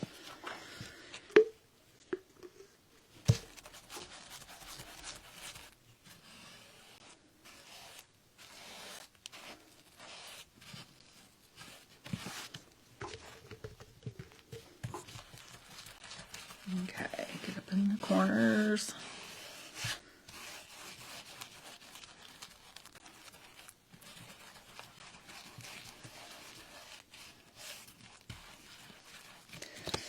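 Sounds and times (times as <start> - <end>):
blade scraping and tearing paper: 3.6 - 12.6, 15.0 - 30.0.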